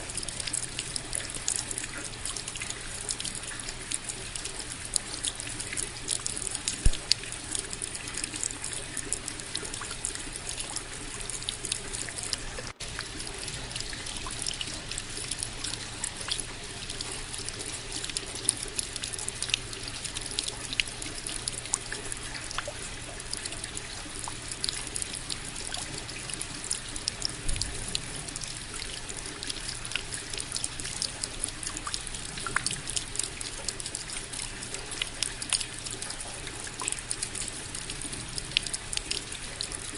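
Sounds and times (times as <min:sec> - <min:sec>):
steady rain falling: 0:11.2 - 0:22.3.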